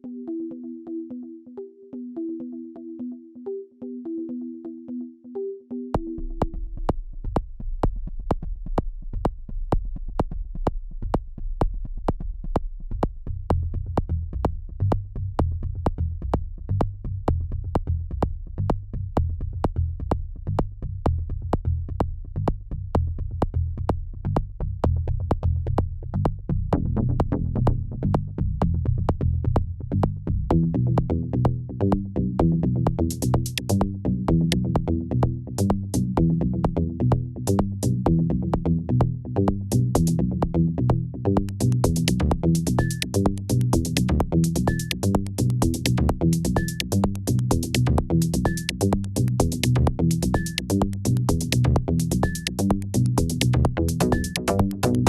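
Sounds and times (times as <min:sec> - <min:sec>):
drum machine pulse: 0:25.3 - 0:55.0
synth bass line: 0:26.8 - 0:55.0.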